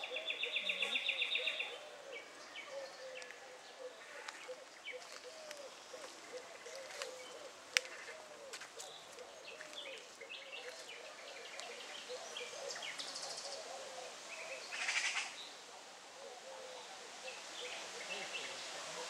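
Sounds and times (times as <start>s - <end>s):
songbirds chirping and singing: 0.0s - 19.0s.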